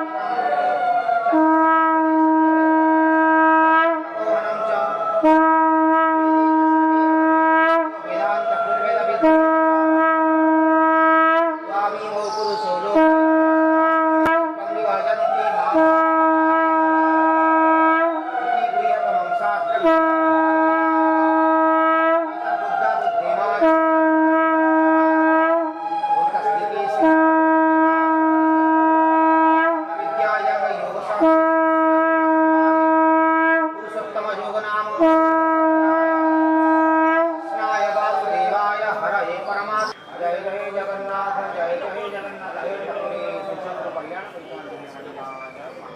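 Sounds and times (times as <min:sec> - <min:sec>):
swooping conch notes: 0:00.0 - 0:43.9
conch shell blasts: 0:01.3 - 0:04.3, 0:05.2 - 0:08.2, 0:09.0 - 0:14.7, 0:15.6 - 0:18.4, 0:19.7 - 0:22.4, 0:23.5 - 0:34.0, 0:34.8 - 0:38.5.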